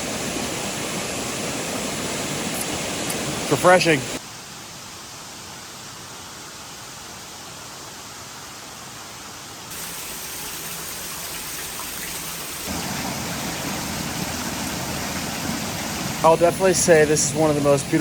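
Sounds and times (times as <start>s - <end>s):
waterfall rushing: 0.0s - 4.2s, 9.7s - 18.0s.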